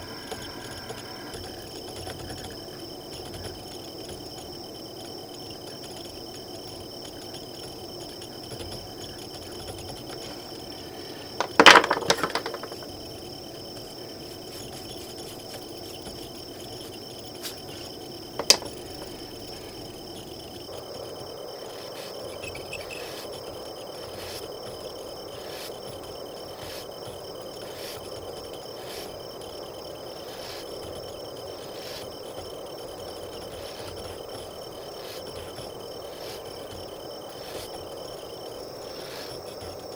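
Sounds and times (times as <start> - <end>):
crickets chirring: 0.0 - 39.9
hard object clattering on surface: 11.4 - 12.9, 18.4 - 18.8.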